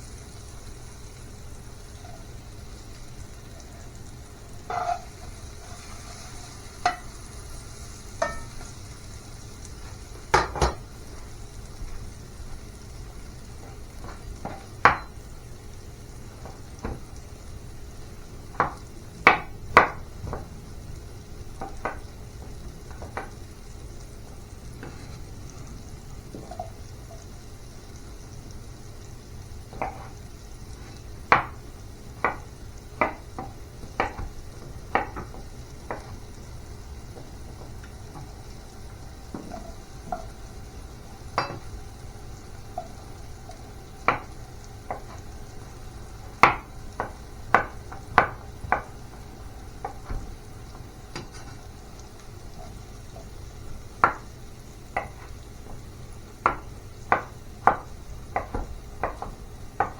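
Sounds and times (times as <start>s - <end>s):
utensils and cookware clinking: 4.6s - 8.8s, 10.3s - 10.9s, 26.3s - 27.3s, 41.3s - 41.8s.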